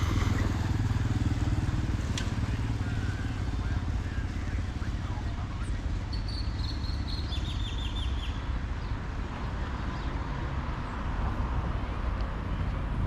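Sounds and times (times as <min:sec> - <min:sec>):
bird chirping: 0:05.6 - 0:09.0.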